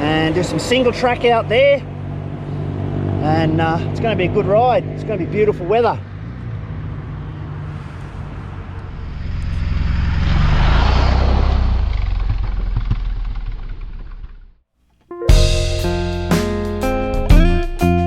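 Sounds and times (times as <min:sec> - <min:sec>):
vehicle passing: 0:00.0 - 0:13.1
motorcycle engine running: 0:11.8 - 0:14.6.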